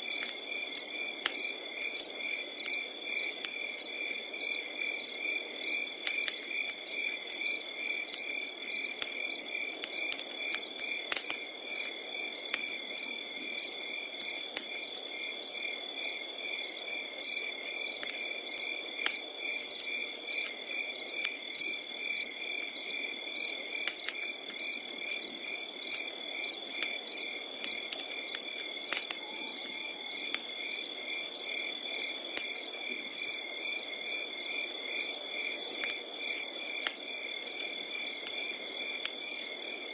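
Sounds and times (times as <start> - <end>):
burning wood crackling: 0.0 - 39.9
campfire hiss: 0.0 - 39.9
crickets chirping: 0.0 - 39.9
insects trilling: 0.0 - 39.9.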